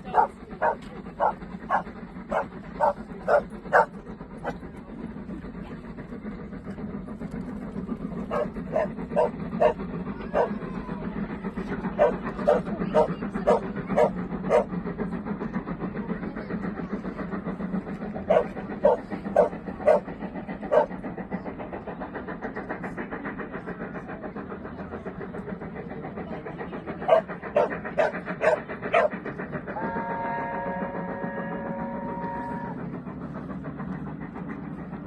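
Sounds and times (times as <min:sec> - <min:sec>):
train rumbling: 0:00.0 - 0:35.0
dog barking: 0:00.1 - 0:03.9, 0:08.3 - 0:10.6, 0:12.0 - 0:14.7, 0:18.3 - 0:20.0, 0:27.1 - 0:29.1
train air horn chord: 0:29.8 - 0:32.8.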